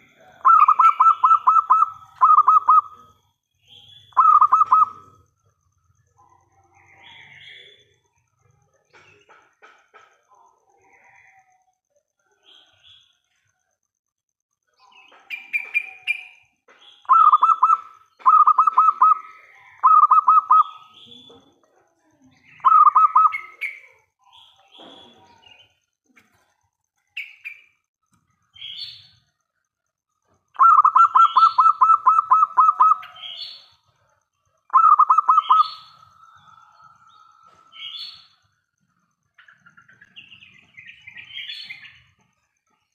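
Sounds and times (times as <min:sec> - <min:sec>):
dove cooing: 0:00.0 - 0:03.1, 0:04.2 - 0:05.2, 0:17.1 - 0:20.8, 0:30.6 - 0:33.4.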